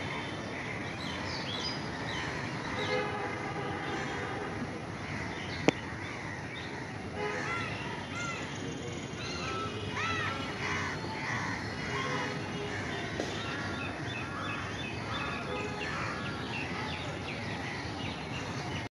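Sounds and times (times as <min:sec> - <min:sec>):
outdoor background hiss: 0:00.0 - 0:18.8
birds calling: 0:05.0 - 0:18.9.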